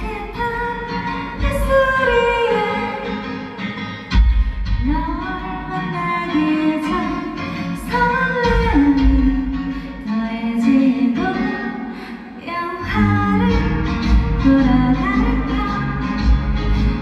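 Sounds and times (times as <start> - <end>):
person singing: 4.8 - 17.0.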